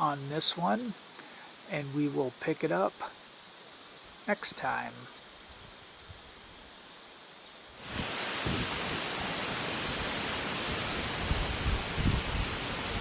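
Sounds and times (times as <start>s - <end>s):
insects chirping: 0.0s - 13.0s
wind buffeting microphone: 11.2s - 13.0s.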